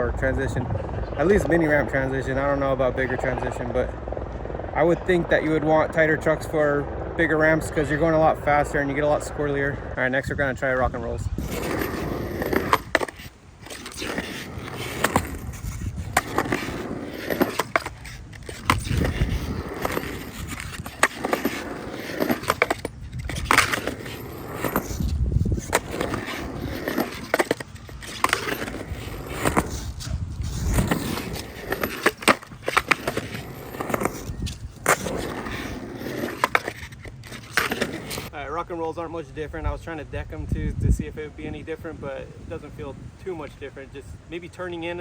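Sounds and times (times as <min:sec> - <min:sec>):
skateboard wheels rumbling: 0:00.0 - 0:41.9
skateboard clacking on coping: 0:11.4 - 0:38.3.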